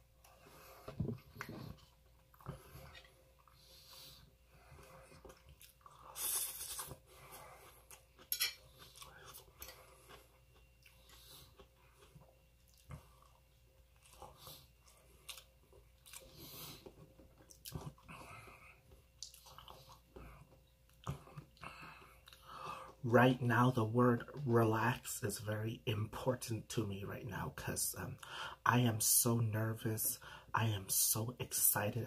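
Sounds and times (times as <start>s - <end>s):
person chewing food: 0.2s - 23.0s.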